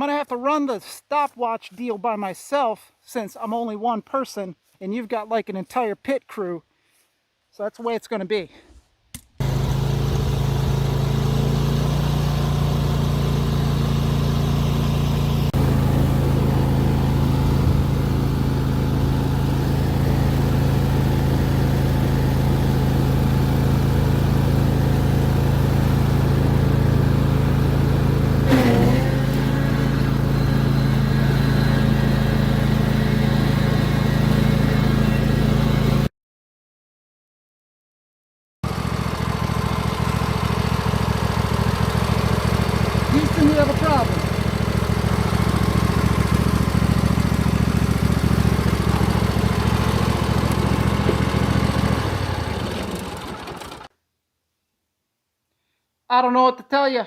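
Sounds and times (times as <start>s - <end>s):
riding lawn mower engine running: 9.4s - 36.1s, 38.6s - 53.9s.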